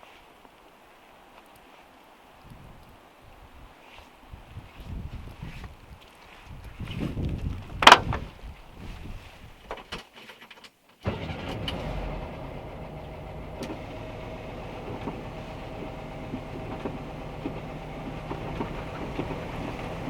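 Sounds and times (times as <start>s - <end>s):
van engine running: 11.0s - 20.0s.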